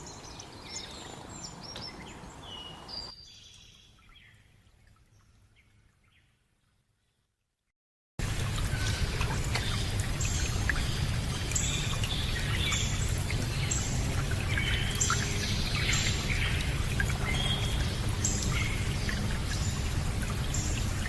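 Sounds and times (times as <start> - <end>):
birds chirping: 0.0 - 4.4, 8.7 - 21.0
water trickling and pouring: 0.0 - 21.0.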